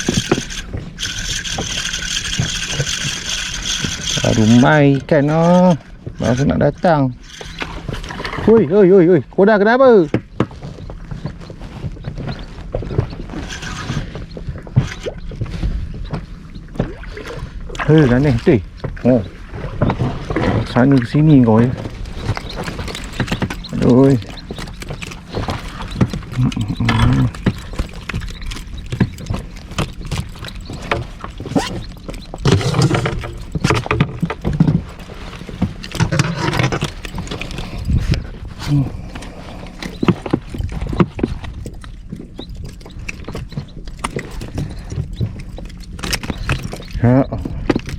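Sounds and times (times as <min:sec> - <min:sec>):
clatter: 0:00.0 - 0:06.5, 0:22.1 - 0:37.9
water sloshing around boat: 0:00.0 - 0:47.9.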